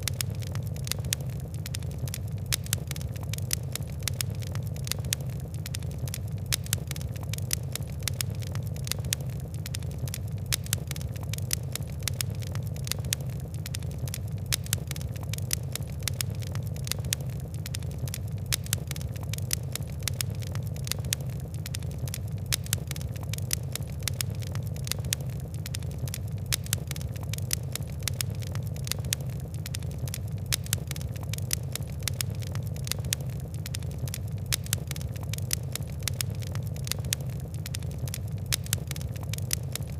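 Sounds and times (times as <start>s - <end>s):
fire crackling: 0.0s - 39.9s.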